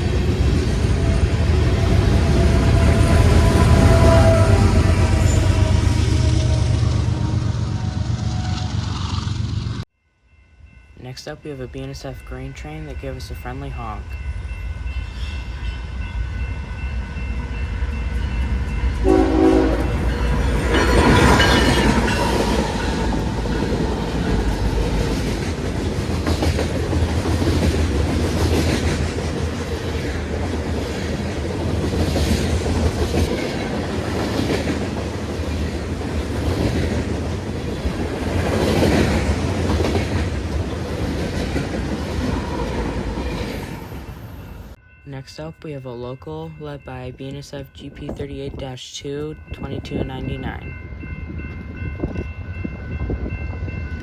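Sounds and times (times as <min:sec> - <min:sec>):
diesel locomotives rumbling: 0:00.0 - 0:09.9, 0:10.6 - 0:54.0
train horn honk: 0:01.1 - 0:09.0, 0:19.0 - 0:23.4.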